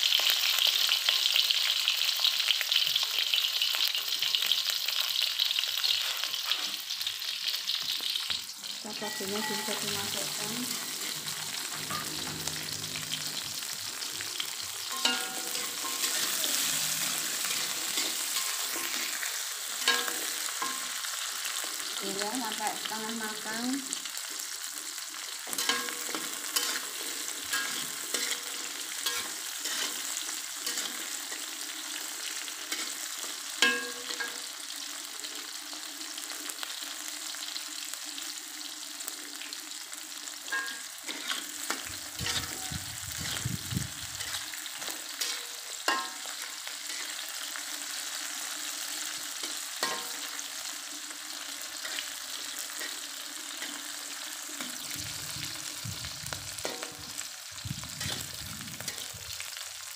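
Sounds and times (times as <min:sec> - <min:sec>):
food sizzling in oil: 0:00.0 - 0:59.9
metal spatula scraping wok: 0:05.8 - 0:06.9, 0:09.0 - 0:21.8, 0:25.5 - 0:31.7, 0:32.3 - 0:34.5, 0:40.5 - 0:48.5, 0:49.3 - 0:50.6, 0:51.5 - 0:59.4.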